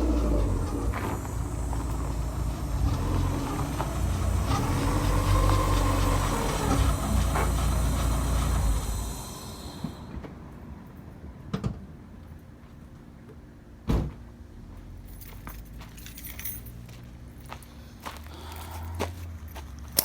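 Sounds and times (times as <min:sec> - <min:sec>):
car engine running: 0:00.0 - 0:10.2
car door shutting: 0:13.9 - 0:14.2.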